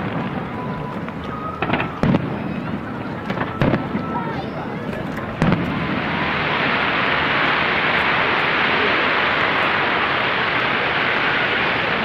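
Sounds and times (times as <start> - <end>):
firework bang: 0.0 - 12.0
dense hissing noise: 5.8 - 12.0.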